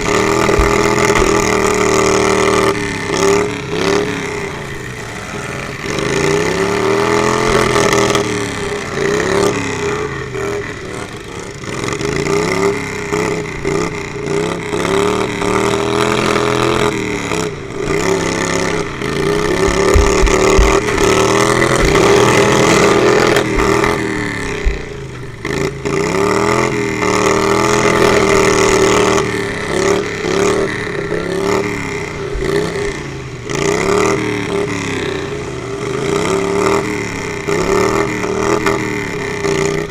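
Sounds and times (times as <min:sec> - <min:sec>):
lawnmower engines revving: 0:00.0 - 0:39.9
low thumps: 0:00.2 - 0:01.4, 0:18.8 - 0:25.4.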